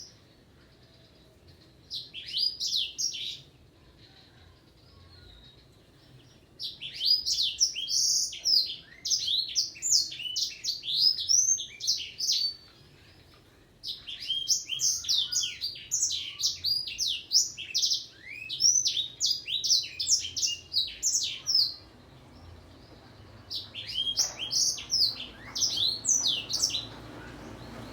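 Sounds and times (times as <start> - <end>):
canary singing: 0.0 - 3.6, 4.2 - 27.9.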